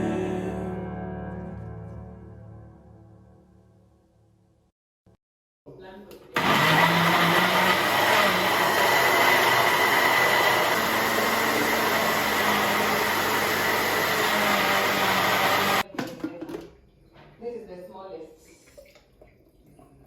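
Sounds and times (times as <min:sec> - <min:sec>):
kitchen blender running: 0:06.4 - 0:15.8.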